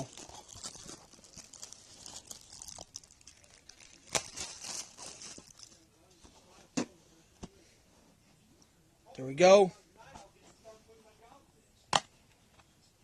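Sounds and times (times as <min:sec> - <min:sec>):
plastic wrapping crinkling and tearing: 0:00.0 - 0:05.8.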